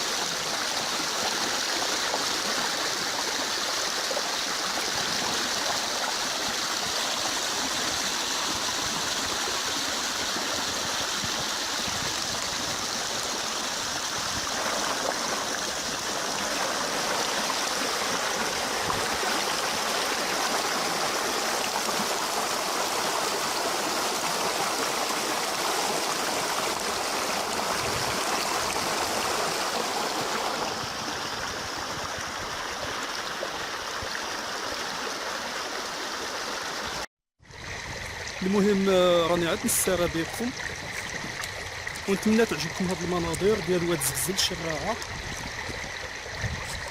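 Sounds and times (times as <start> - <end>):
river water rushing: 0.0 - 37.0, 37.9 - 46.9.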